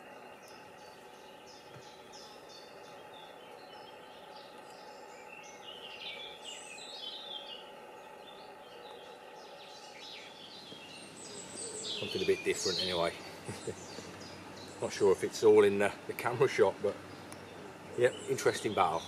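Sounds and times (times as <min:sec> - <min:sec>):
faint outdoor background: 0:00.0 - 0:19.0
small birds chirping: 0:00.0 - 0:19.0.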